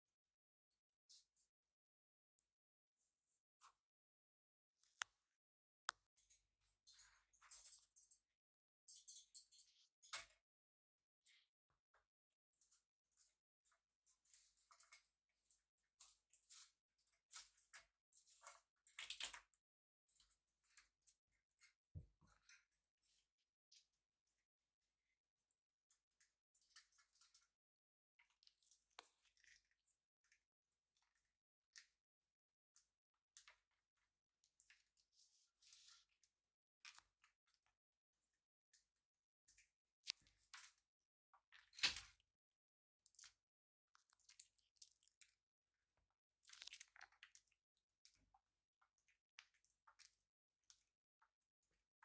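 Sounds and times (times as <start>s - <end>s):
parrot beaks crunching and clicking: 46.5s - 47.4s.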